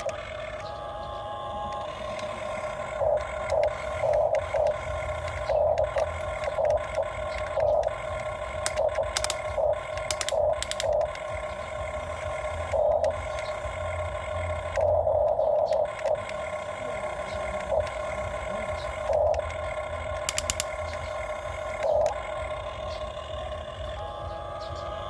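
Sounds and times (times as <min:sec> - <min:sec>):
excavator motor whirring: 0:00.0 - 0:25.0
low hum: 0:00.0 - 0:25.0
clicks and rattles: 0:08.6 - 0:11.4, 0:19.0 - 0:21.2.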